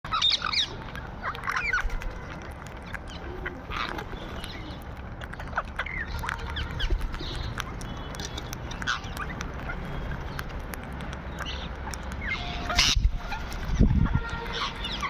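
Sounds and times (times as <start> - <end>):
parrots calling: 0.1 - 15.0
faint clicks: 0.6 - 12.3.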